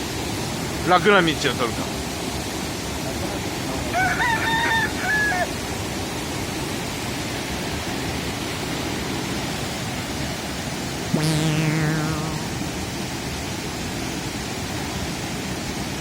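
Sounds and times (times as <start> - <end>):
crowing-like call: 4.0 - 5.5
high falling whistle: 11.2 - 12.5.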